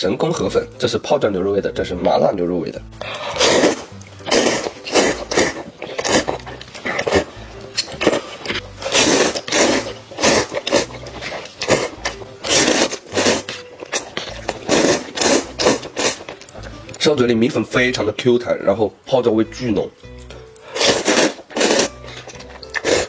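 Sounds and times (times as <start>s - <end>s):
slurping noodles: 3.0s - 17.0s, 20.6s - 23.0s.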